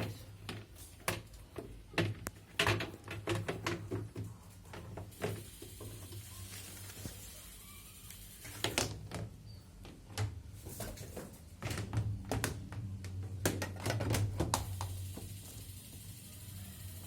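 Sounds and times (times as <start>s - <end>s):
washing machine parts knocking: 0.0s - 5.5s.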